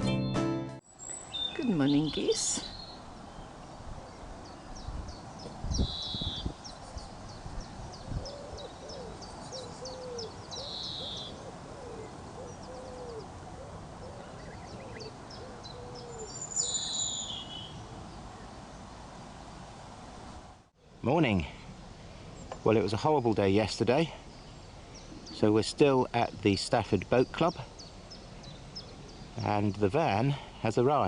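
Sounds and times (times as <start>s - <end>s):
birds chirping and whistling: 1.0s - 13.2s, 14.1s - 17.9s
bird cooing: 8.0s - 18.1s.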